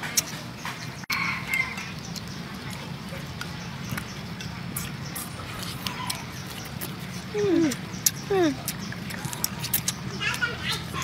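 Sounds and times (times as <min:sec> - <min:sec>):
chewing lobster meat: 0:00.1 - 0:11.0.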